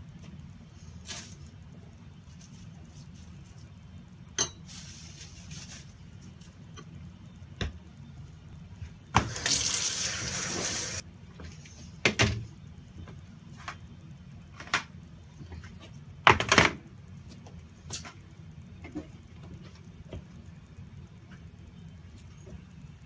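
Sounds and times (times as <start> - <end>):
water running from a tap: 9.2 - 11.0.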